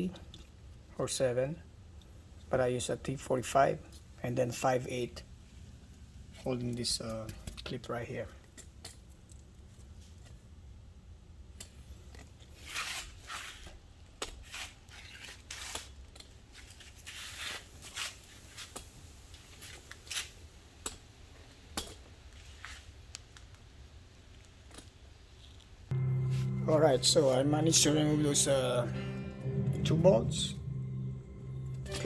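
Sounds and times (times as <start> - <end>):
low steady hum: 25.9 - 32.0.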